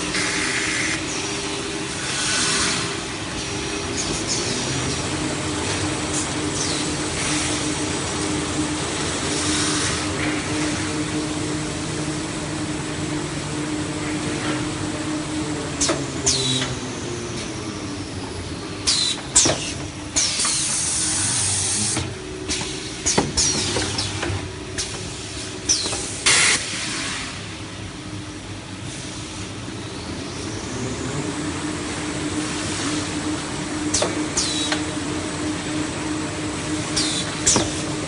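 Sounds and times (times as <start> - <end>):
log-cutting machine humming: 0.0 - 24.6.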